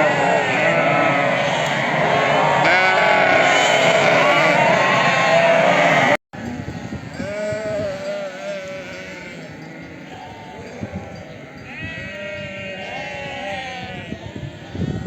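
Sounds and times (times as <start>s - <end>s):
sheep bleating: 0.0s - 6.2s, 7.2s - 14.2s.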